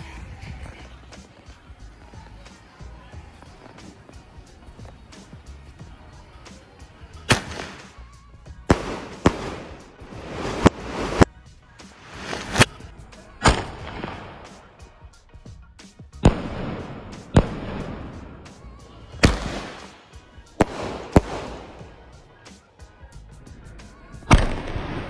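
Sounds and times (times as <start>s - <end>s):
fireworks bangs with hiss: 0.0s - 14.9s, 16.2s - 22.7s, 24.2s - 25.0s
small firework pops: 7.2s - 8.1s, 12.1s - 14.6s, 19.2s - 20.0s, 24.3s - 25.0s.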